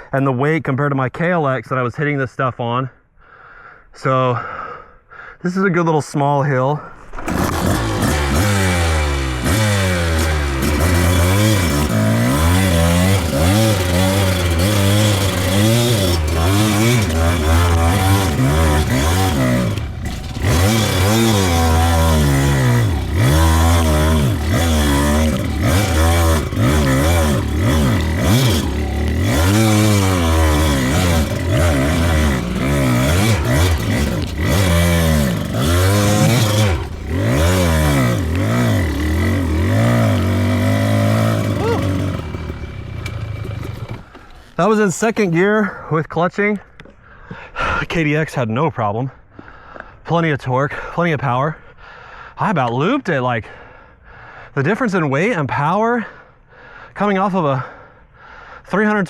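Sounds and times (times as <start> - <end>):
dirt bike engine revving: 6.9 - 45.4.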